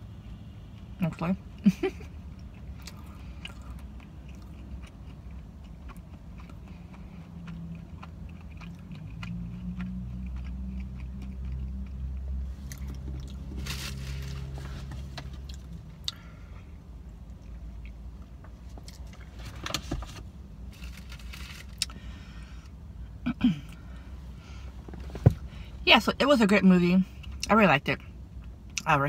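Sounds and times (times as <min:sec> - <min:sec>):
vehicle engine hum: 0:00.0 - 0:29.0
person chewing: 0:02.3 - 0:19.3.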